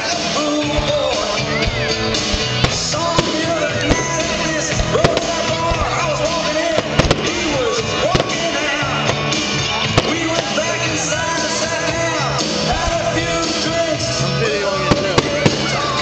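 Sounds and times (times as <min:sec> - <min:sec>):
firework bangs: 0:00.0 - 0:16.0
rock music with singing: 0:00.0 - 0:16.0.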